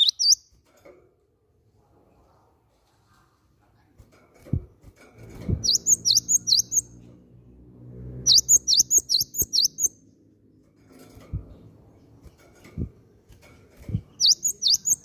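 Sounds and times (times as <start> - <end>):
bird singing sharp high notes: 0.0 - 0.5, 5.6 - 6.9, 8.3 - 10.0, 14.2 - 15.0.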